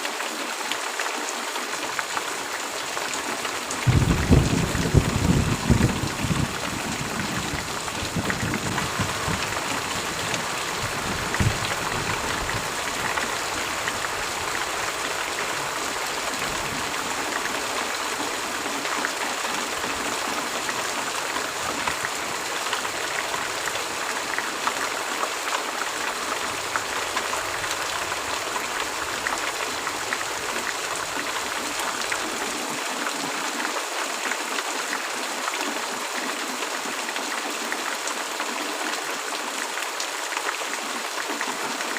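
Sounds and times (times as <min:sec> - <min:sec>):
heavy rain: 0:00.0 - 0:41.9
thunder rumble: 0:03.8 - 0:14.6.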